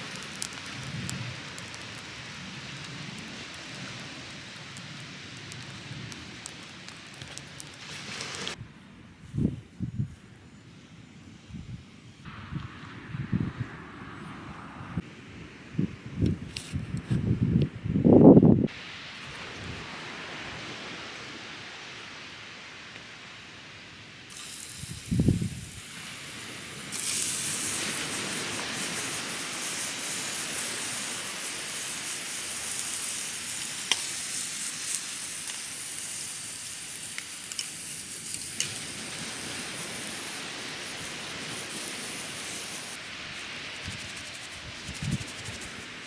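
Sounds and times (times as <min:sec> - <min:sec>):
shower head spraying water: 0:24.3 - 0:46.0.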